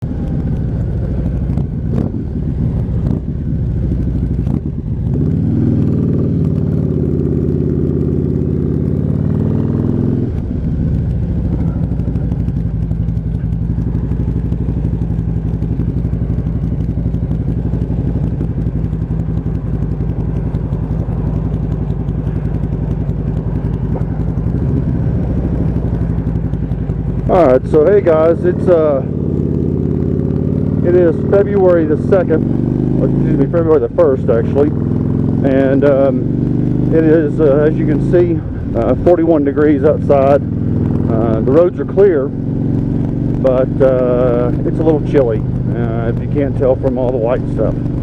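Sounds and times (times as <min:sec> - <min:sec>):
motorcycle engine idling and revving: 0:00.0 - 0:48.0.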